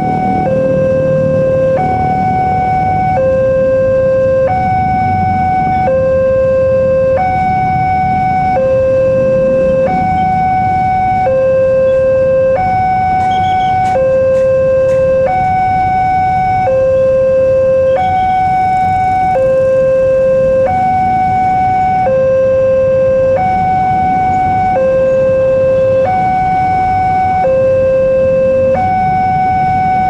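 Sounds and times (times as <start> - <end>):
level crossing alarm two tones: 0.0 - 30.0.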